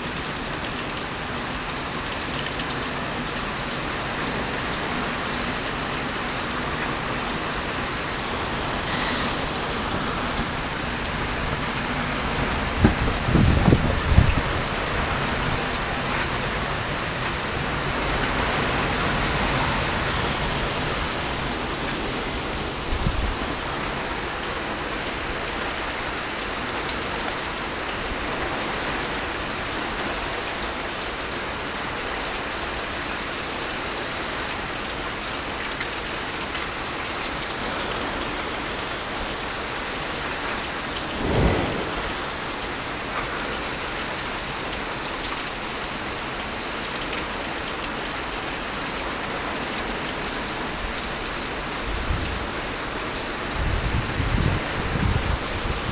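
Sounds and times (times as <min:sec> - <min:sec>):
heavy rain: 0:00.0 - 0:55.9
low thumps: 0:41.1 - 0:42.7.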